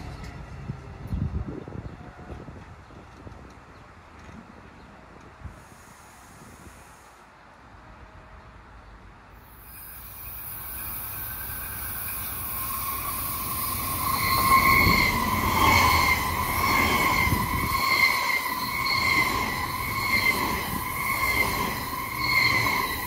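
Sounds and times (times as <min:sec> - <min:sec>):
train rumble: 0:00.0 - 0:23.0
high ringing squeal: 0:09.5 - 0:23.0.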